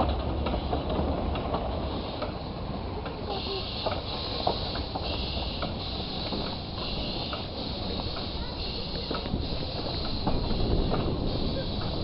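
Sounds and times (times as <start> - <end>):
rattles and clicks from wheels: 0.0 - 12.0
steam train rumbling: 0.0 - 12.0
high hiss: 3.2 - 12.0.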